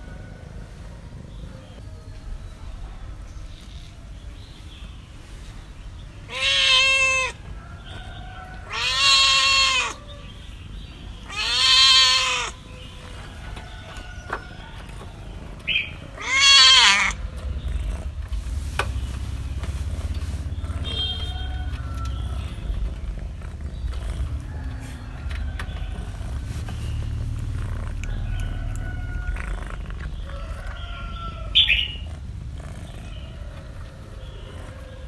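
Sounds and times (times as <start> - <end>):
cat meowing: 6.3 - 7.4, 8.6 - 10.1, 11.2 - 12.6, 16.1 - 17.2.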